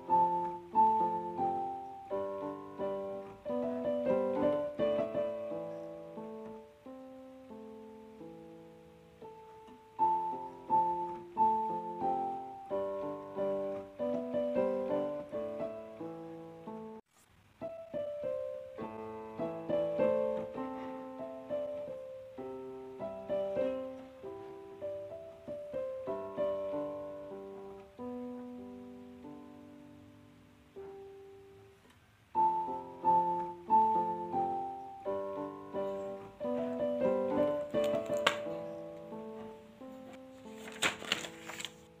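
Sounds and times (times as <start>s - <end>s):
slow piano melody: 0.0s - 42.0s.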